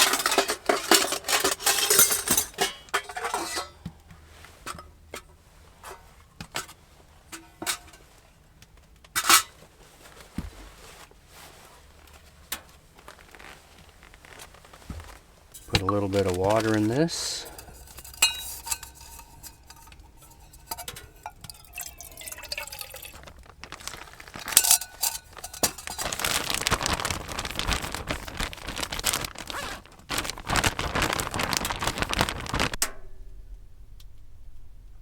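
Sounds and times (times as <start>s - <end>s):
clinks and drips: 0.0s - 4.0s, 15.5s - 28.0s
water pouring into a bowl: 20.6s - 27.6s.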